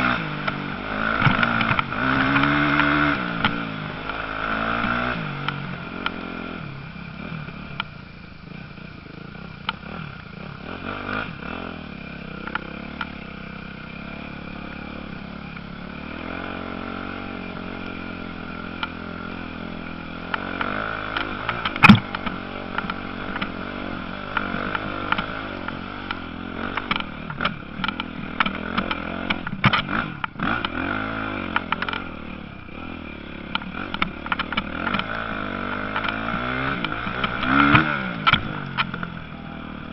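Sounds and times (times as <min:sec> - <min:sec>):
motorcycle engines revving: 0:00.0 - 0:39.9
sharp crack: 0:20.3 - 0:23.7.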